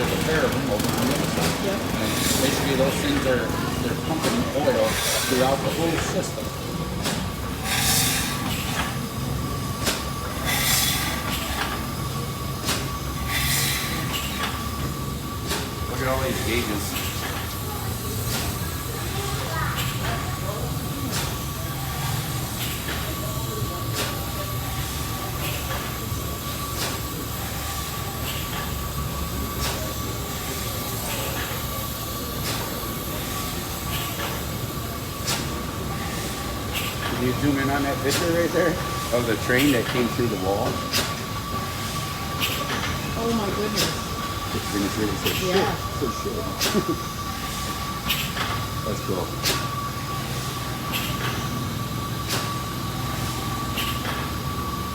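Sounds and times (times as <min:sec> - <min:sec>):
steam engine low rumble: 0:00.0 - 0:54.9
steam exhaust hissing: 0:00.0 - 0:54.9
thin steady whine: 0:00.0 - 0:54.9.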